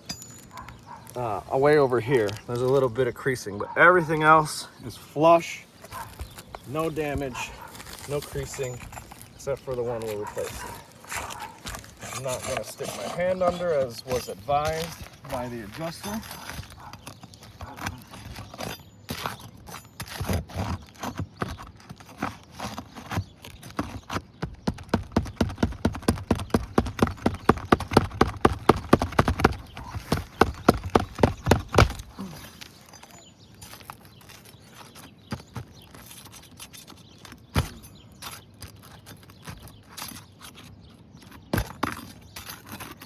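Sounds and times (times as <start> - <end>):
hand tool knocking under shingles: 23.6 - 32.3.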